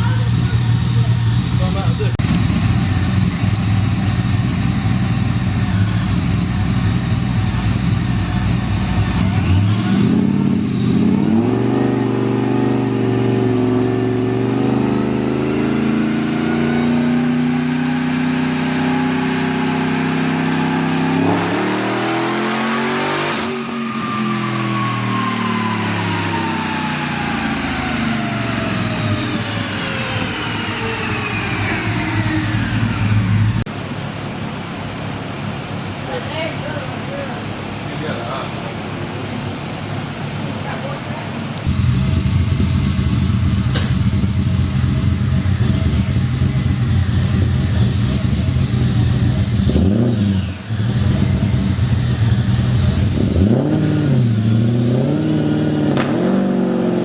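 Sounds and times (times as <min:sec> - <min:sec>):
car engine idling and revving: 0:00.0 - 0:36.4, 0:38.5 - 0:57.0
thin falling whine: 0:54.8 - 0:57.0.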